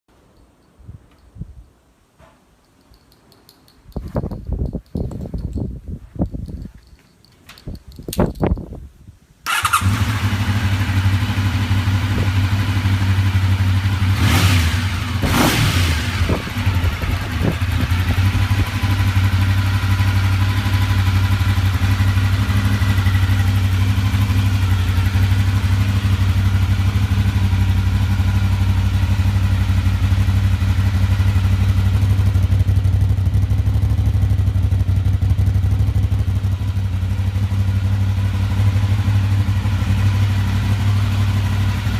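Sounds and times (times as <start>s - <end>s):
motorcycle engine starting and revving: 9.4s - 41.9s.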